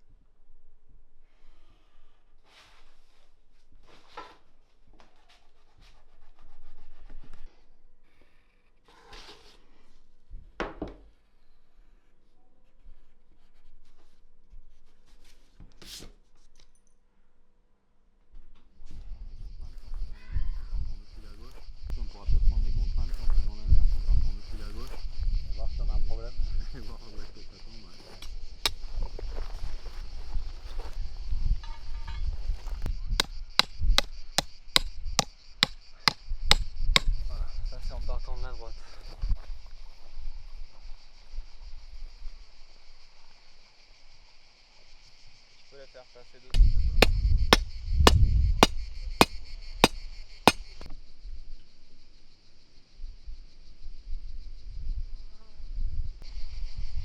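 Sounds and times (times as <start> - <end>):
insects buzzing: 19.3 - 50.9
hammer blows: 33.2 - 34.9, 35.6 - 37.1, 49.8 - 50.8
sharp rapid knocks: 49.8 - 50.7.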